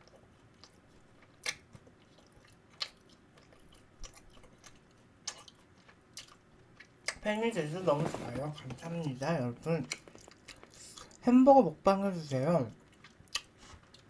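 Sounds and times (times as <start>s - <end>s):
crunchy clicks of chewing: 0.0s - 7.2s, 9.8s - 11.2s, 12.7s - 14.0s
person chewing: 0.0s - 7.3s, 7.9s - 11.2s, 12.8s - 14.0s.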